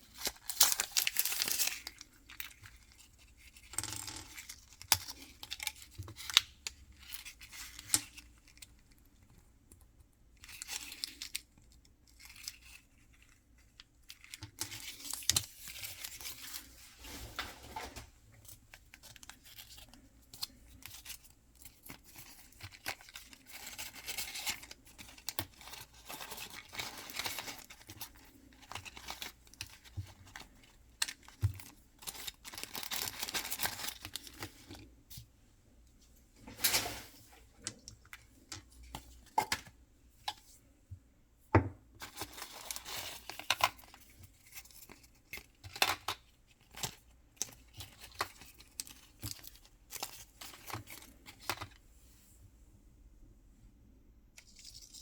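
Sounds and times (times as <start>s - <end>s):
packaging tearing and crinkling: 0.1s - 2.6s, 31.0s - 34.6s.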